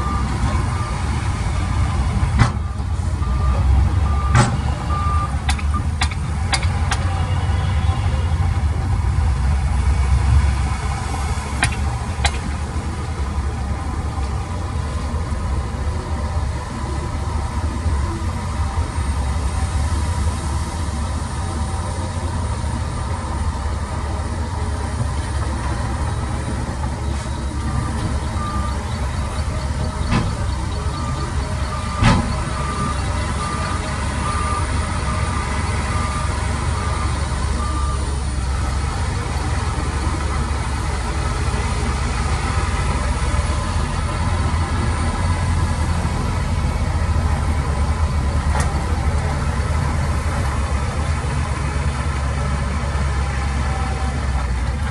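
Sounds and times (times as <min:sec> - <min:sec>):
reversing alarm beeping: 0:00.0 - 0:06.0, 0:26.1 - 0:44.9
diesel engine rumbling: 0:00.0 - 0:54.9.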